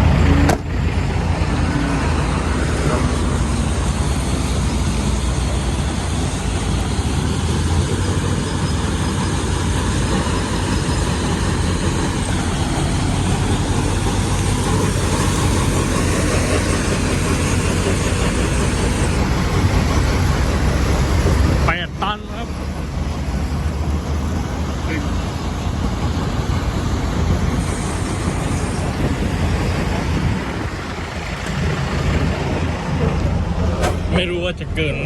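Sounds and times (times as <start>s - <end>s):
diesel truck engine rumble: 0.0s - 35.0s.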